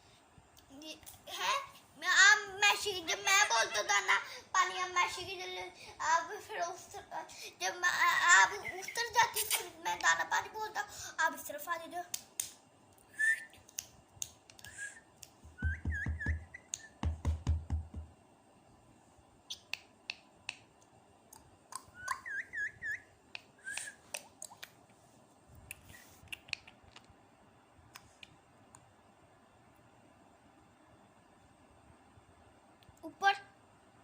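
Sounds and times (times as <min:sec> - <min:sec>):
parrot whistled chirps: 0:13.1 - 0:13.5, 0:15.6 - 0:17.0, 0:21.8 - 0:24.0
sharp clicks and taps: 0:13.7 - 0:18.2
dull thumps: 0:15.4 - 0:18.2.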